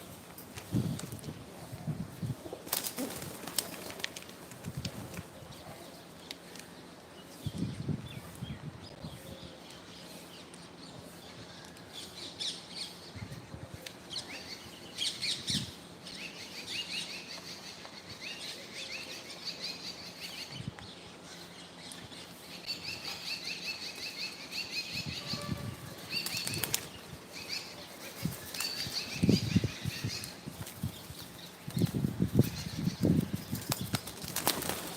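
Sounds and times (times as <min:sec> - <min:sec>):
birds flapping wings: 0:02.5 - 0:05.4, 0:25.8 - 0:27.1, 0:27.9 - 0:29.1, 0:33.2 - 0:34.9.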